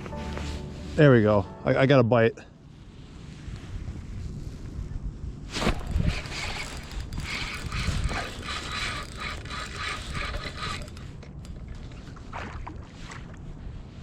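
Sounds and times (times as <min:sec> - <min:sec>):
wind on microphone: 0:02.6 - 0:11.0
fishing reel clicking: 0:05.8 - 0:11.8.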